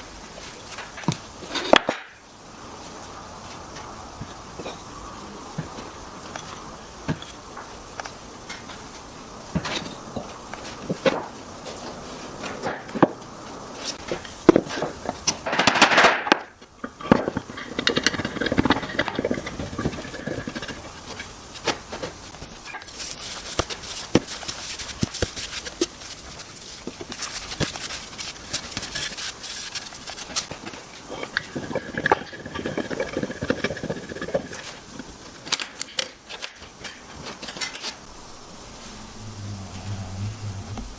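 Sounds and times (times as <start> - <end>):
wooden pieces knocking and scraping: 0.7 - 2.2, 13.9 - 38.0
short rushing sound: 38.1 - 40.9.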